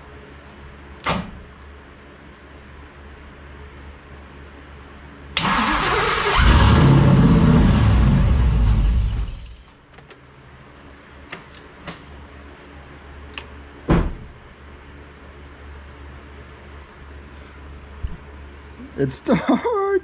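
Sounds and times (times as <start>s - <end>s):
engine starter cranking: 5.4s - 9.6s
engine running loudly: 6.3s - 9.6s.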